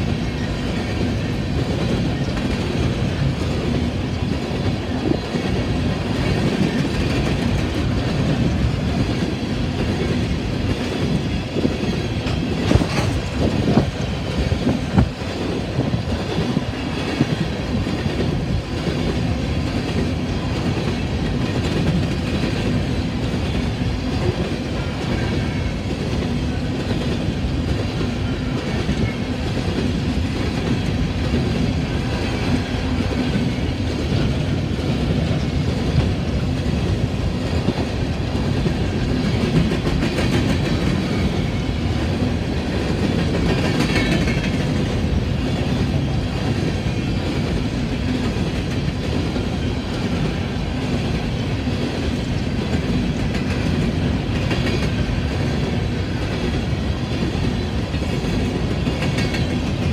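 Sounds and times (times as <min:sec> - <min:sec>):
freight train rumbling past: 0:00.0 - 0:59.9
wheels clacking over rail joints: 0:00.0 - 0:59.9.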